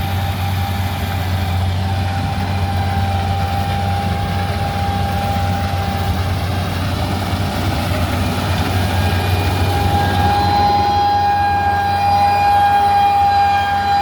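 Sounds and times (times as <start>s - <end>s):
diesel engine deep hum: 0.0s - 14.0s
thin high whine: 8.7s - 14.0s.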